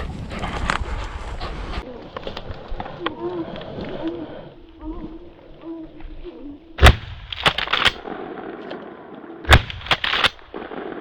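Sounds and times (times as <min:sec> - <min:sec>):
loud gunshots: 0:06.8 - 0:08.0, 0:09.5 - 0:10.5.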